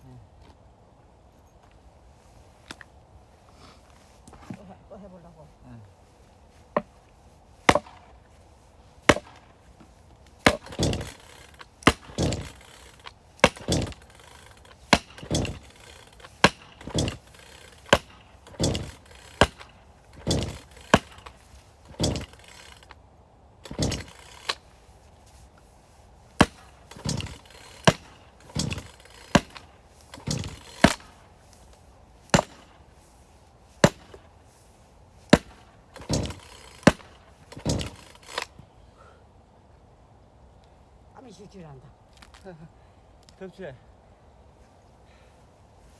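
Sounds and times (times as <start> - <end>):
axe chopping firewood: 6.7 - 7.0, 7.6 - 8.3, 9.0 - 22.9, 23.6 - 24.7, 26.4 - 33.0, 33.8 - 34.3, 35.3 - 38.6.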